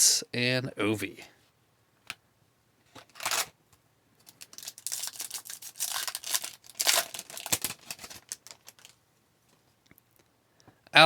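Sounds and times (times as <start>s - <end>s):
foil wrapper tearing and crinkling: 3.1s - 3.5s, 4.2s - 9.0s.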